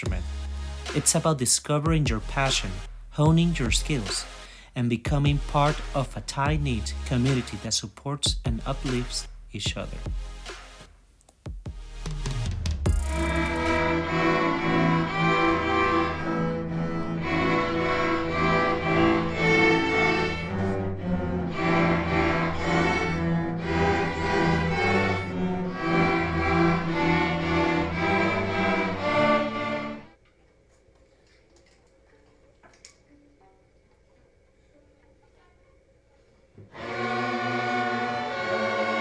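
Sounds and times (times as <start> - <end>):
string orchestra playing: 13.0 - 30.2, 36.7 - 39.0.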